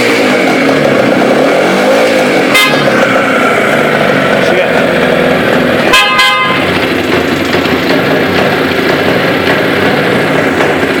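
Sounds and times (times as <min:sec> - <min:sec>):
motorcycle two-stroke engine running: 0:00.0 - 0:11.0
motorcycle horn beep: 0:02.5 - 0:02.9, 0:05.9 - 0:06.6.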